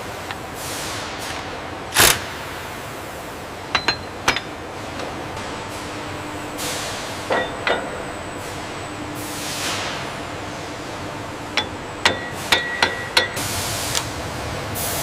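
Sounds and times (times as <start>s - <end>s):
mechanical hum and hiss: 0.0s - 15.0s
metal-on-metal clanks: 3.7s - 4.6s, 11.5s - 13.4s.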